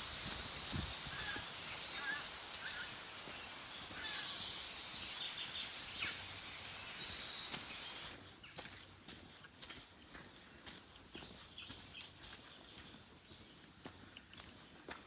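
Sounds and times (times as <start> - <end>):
steady outdoor hiss: 0.0 - 9.0
birds chirping: 0.2 - 14.8.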